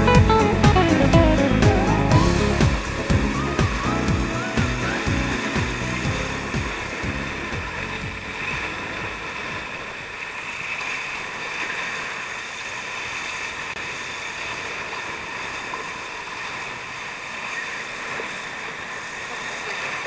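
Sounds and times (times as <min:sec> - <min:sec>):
rush of water: 0:00.0 - 0:20.0
wind: 0:00.0 - 0:20.0.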